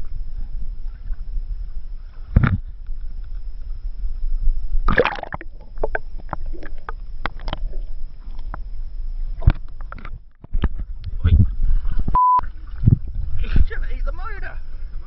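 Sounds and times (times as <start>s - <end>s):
wind rumble on microphone: 0.0s - 15.0s
water splashing around boat: 4.8s - 15.0s.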